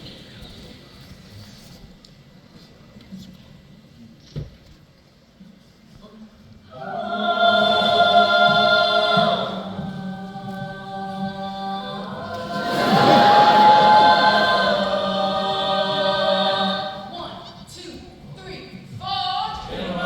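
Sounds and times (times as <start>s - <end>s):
a cappella group singing: 6.7s - 17.8s, 19.0s - 20.0s.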